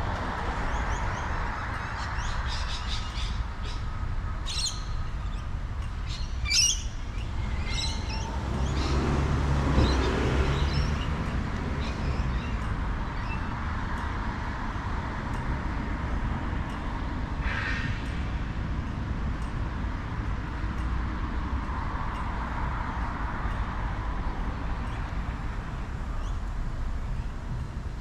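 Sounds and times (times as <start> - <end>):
wind and tyre rumble: 0.0 - 28.0
birds squawking and chirping: 6.1 - 9.1.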